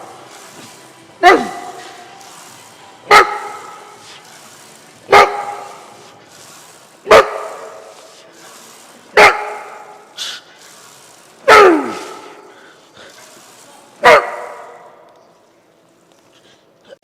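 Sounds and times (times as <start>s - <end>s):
dog barking loudly: 1.2s - 2.0s, 3.1s - 4.0s, 5.1s - 5.9s, 7.0s - 8.0s, 9.1s - 10.1s, 11.4s - 12.4s, 14.0s - 14.9s.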